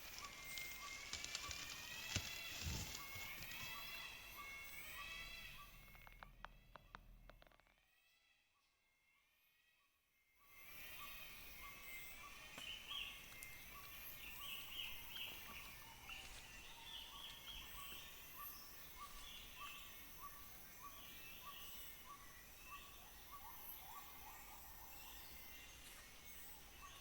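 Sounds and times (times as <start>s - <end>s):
birds calling: 0.0s - 6.0s
insects droning: 0.0s - 6.2s, 10.6s - 27.0s.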